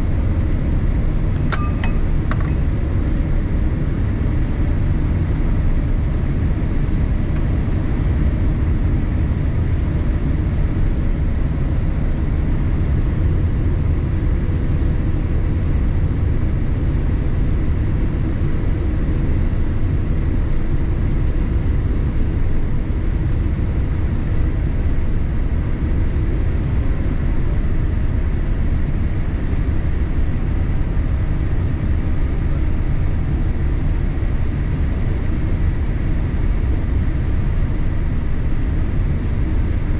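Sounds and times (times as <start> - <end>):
airliner cabin rumble: 0.0 - 8.6
faint steady whines: 0.0 - 39.9.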